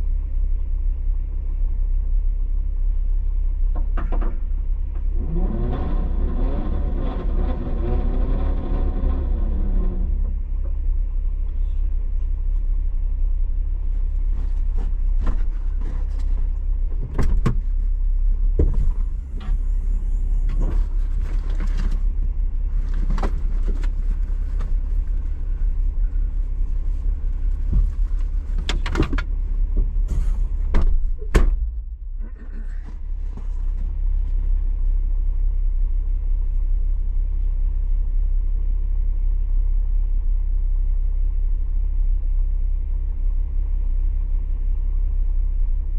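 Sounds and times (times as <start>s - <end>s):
vehicle engine rumble: 0.0s - 45.9s
sharp knocks and rattles: 20.5s - 33.6s.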